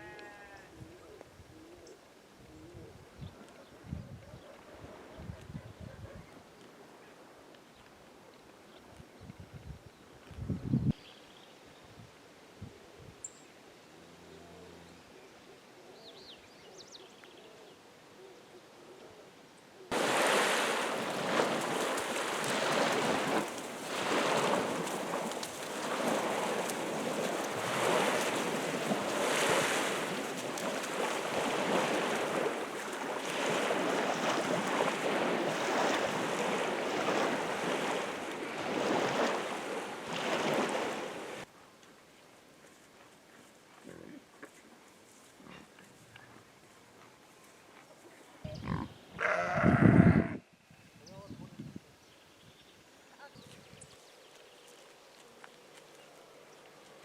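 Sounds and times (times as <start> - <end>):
waves breaking on shore: 19.9 - 41.5.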